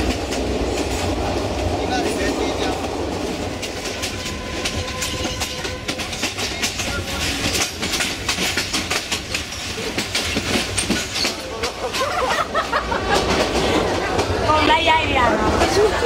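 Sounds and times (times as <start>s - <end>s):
train carriage rattling: 0.0s - 16.0s
train wheels clattering on rails: 0.0s - 16.0s.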